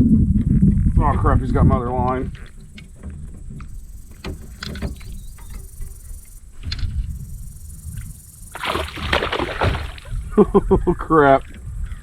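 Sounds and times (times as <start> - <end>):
low rumble: 0.0 - 4.1
high buzz of insects: 1.6 - 12.0.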